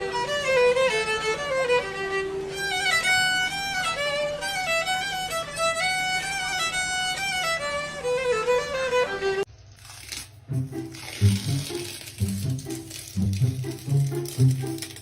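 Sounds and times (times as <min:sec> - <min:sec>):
violin melody: 0:00.0 - 0:09.5, 0:10.5 - 0:15.0.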